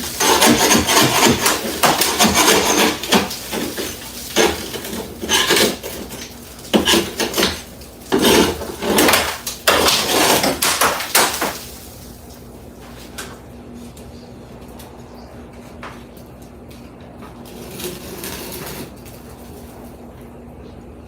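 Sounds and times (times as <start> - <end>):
scraping and clattering: 0.0 - 11.8.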